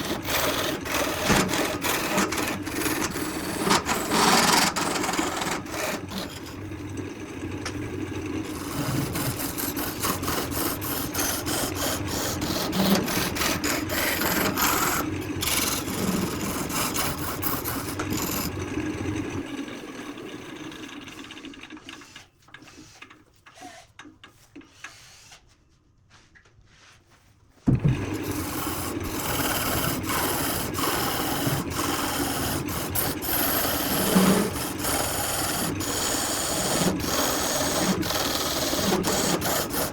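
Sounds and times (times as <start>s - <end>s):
wood lathe tool rasping: 0.0s - 19.4s, 27.7s - 39.9s
lathe motor hum: 0.0s - 22.1s, 27.7s - 39.9s.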